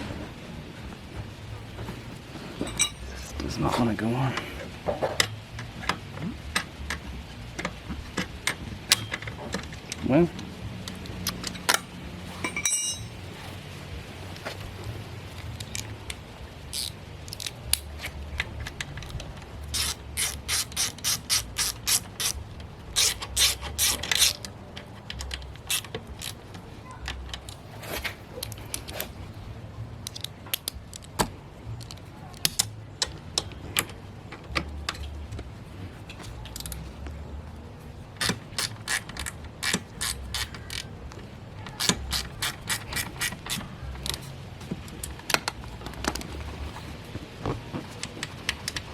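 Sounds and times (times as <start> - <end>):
ratchet wrench clicking: 16.7 - 17.9, 19.7 - 22.4, 23.0 - 26.4, 38.2 - 41.0, 41.7 - 44.3.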